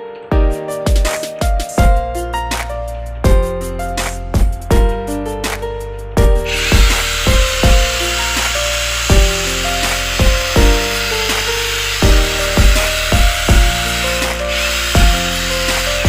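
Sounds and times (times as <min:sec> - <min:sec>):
background music with beat: 0:00.0 - 0:16.0
grinder hissing: 0:06.5 - 0:16.0.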